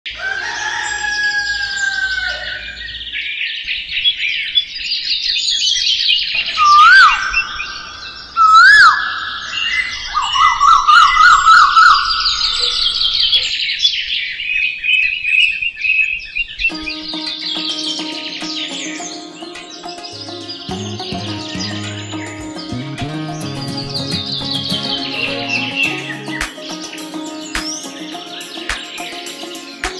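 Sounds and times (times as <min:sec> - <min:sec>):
birds chirping and singing: 0:16.7 - 0:29.9.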